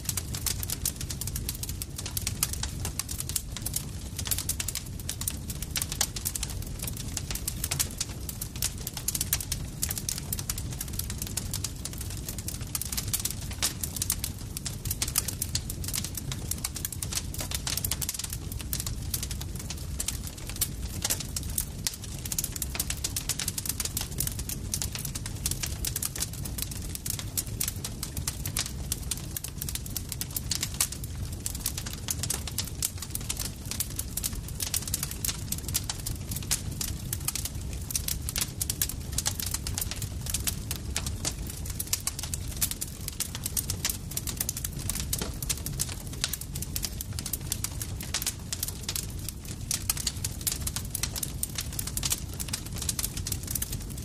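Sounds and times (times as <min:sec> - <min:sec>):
campfire crackling and popping: 0:00.0 - 0:54.0
low rumble of burning wood: 0:00.0 - 0:54.0.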